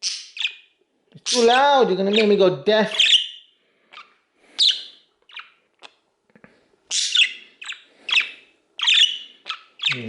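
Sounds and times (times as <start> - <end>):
budgerigar chirping: 0.0 - 6.0, 6.9 - 10.0.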